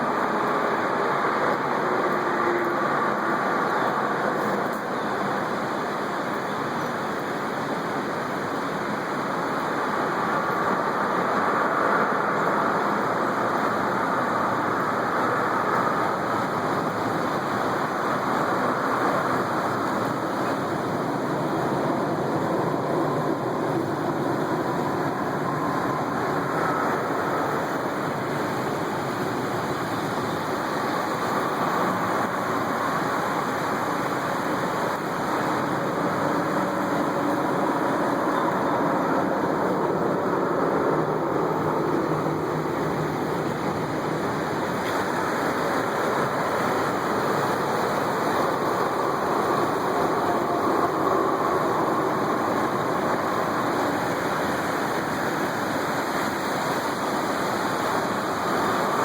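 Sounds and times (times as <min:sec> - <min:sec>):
vehicle engine drone: 0:00.0 - 0:59.0.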